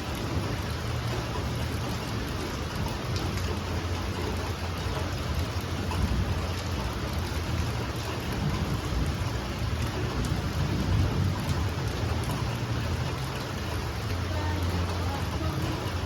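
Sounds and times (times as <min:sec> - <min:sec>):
heavy rain falling: 0:00.0 - 0:16.0
low thunder rumble: 0:05.2 - 0:16.0.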